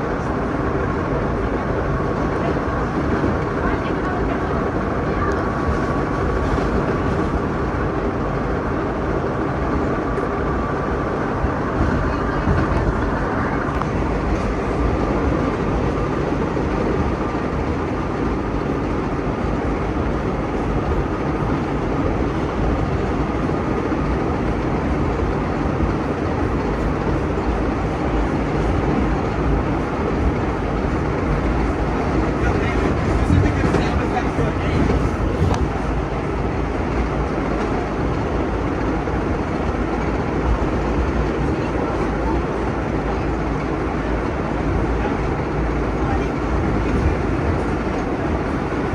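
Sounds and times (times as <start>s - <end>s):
subway train wheels rumbling: 0.0s - 48.9s.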